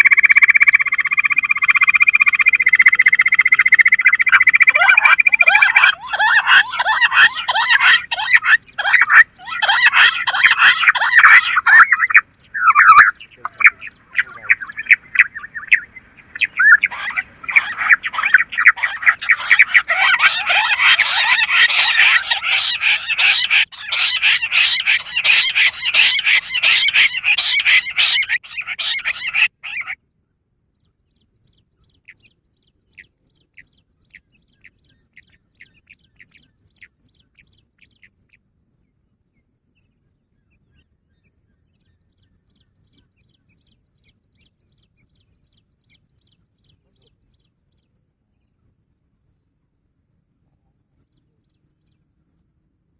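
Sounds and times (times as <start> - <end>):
quail chirping whistles: 0.0 - 30.0.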